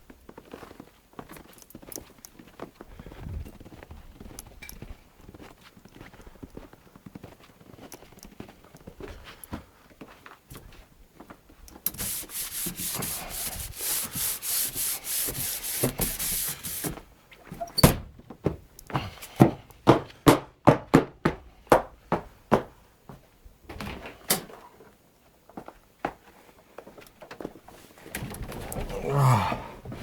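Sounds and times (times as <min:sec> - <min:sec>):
scraping strokes: 0:11.9 - 0:17.0.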